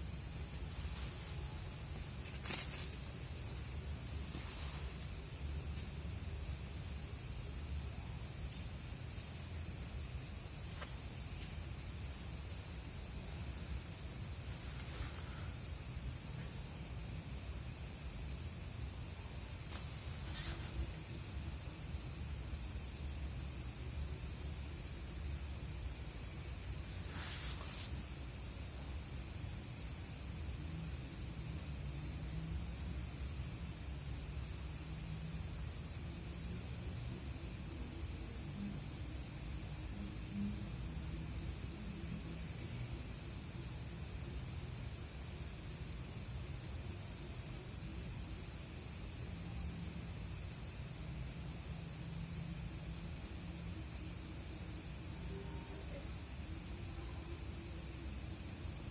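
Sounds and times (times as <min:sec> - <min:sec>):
crickets chirping: 0:00.0 - 0:58.9
insect drone: 0:00.0 - 0:58.9
brief rustle: 0:00.8 - 0:04.9.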